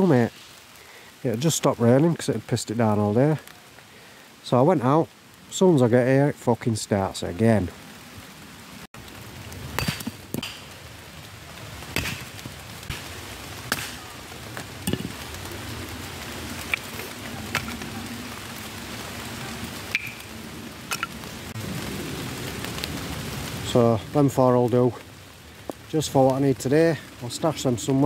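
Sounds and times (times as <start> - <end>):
rain on woodland floor: 0.0 - 28.0
hatchet splitting wood: 9.8 - 10.6, 12.0 - 12.3.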